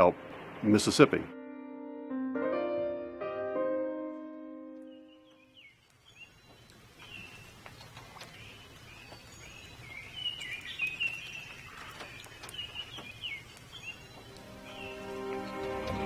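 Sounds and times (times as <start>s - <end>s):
low outdoor background: 4.8s - 16.0s
songbirds chirping and warbling: 4.9s - 16.0s.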